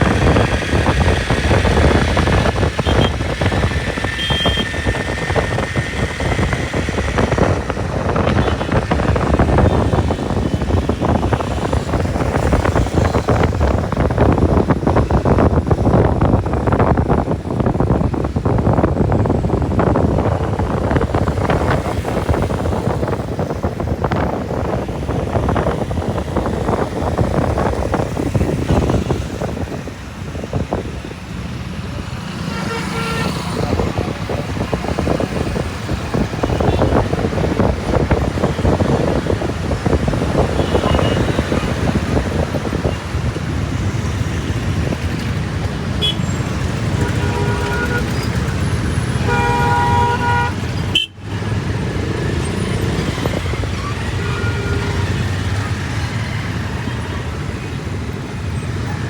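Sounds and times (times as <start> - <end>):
road traffic rumble: 0.0 - 59.0
vehicle horns honking: 2.4 - 6.4, 7.4 - 11.3, 32.3 - 34.1, 36.1 - 37.5, 40.3 - 42.2, 46.0 - 51.4, 52.6 - 56.2.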